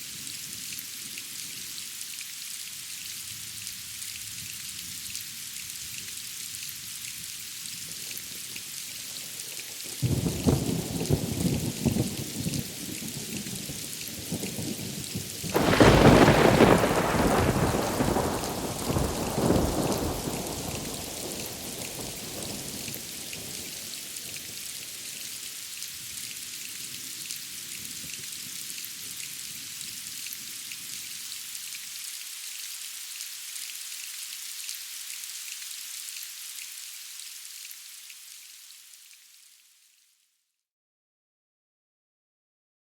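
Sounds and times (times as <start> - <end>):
steady rain hiss: 0.0 - 40.2
thunder rumbling: 15.5 - 23.7
thunderclap: 15.6 - 22.9.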